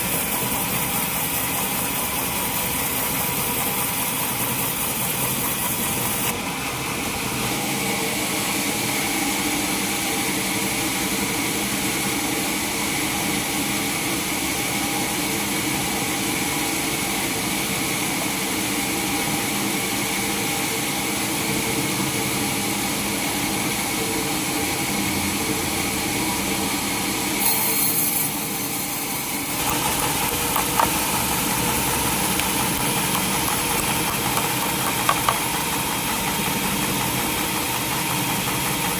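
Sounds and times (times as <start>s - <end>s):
sawmill motor humming: 0.0s - 8.2s, 23.7s - 38.9s.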